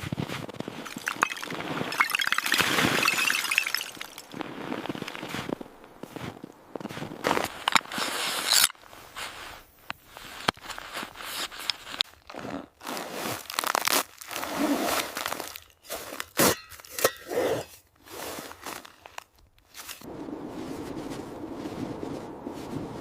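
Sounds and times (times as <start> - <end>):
crunching of packed snow: 0.0 - 16.6, 18.0 - 23.0
steady rushing noise: 20.1 - 23.0.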